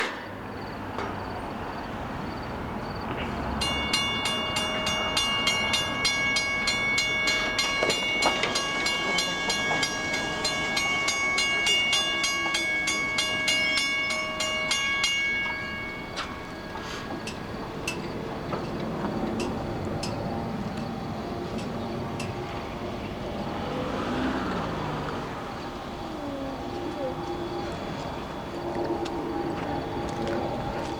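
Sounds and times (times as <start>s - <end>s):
train rumble: 0.0s - 30.9s
railroad crossing bell ringing: 3.3s - 30.9s.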